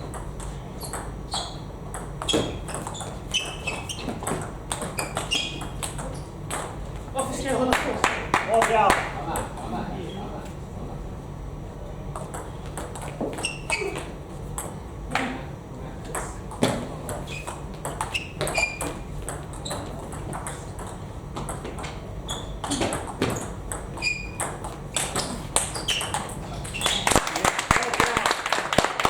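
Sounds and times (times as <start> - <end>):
short high squeaks: 0.8 - 6.3, 13.4 - 14.1, 17.3 - 20.0, 22.2 - 27.2.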